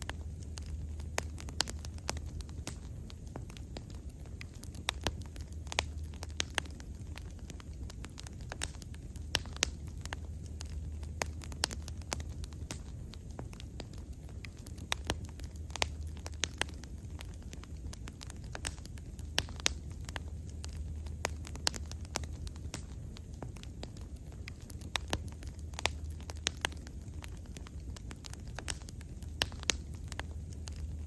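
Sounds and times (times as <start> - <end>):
fire crackling and popping: 0.0 - 31.0
low rumble of flames: 0.0 - 31.0.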